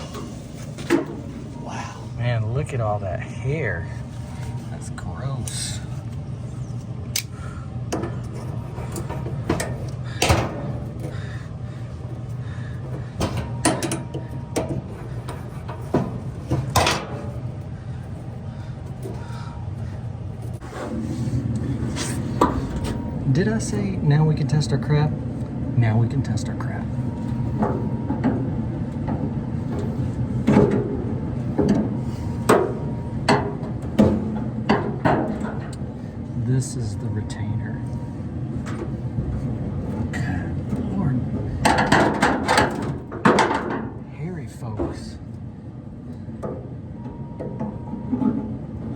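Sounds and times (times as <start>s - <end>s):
steady low hum: 0.0s - 48.9s
dryer parts clicking and knocking: 7.2s - 11.4s, 12.0s - 19.4s, 27.4s - 35.9s, 38.6s - 45.2s.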